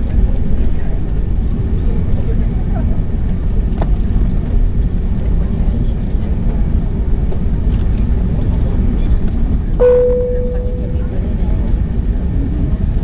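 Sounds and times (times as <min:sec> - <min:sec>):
clear tone: 0:09.8 - 0:11.5.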